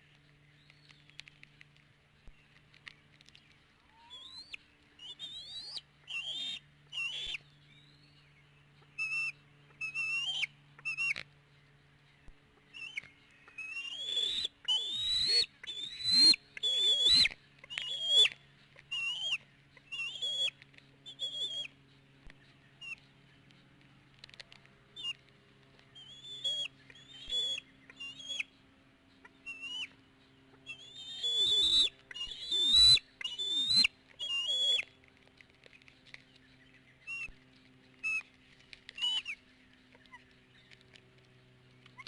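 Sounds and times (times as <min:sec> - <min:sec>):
faint low hum: 0:00.0 - 0:42.0
eaglets piping whistles: 0:03.9 - 0:08.1, 0:09.0 - 0:11.2, 0:12.7 - 0:21.7, 0:26.0 - 0:28.5, 0:29.3 - 0:30.0, 0:30.6 - 0:34.9, 0:37.0 - 0:37.4, 0:38.0 - 0:38.3, 0:38.9 - 0:39.4.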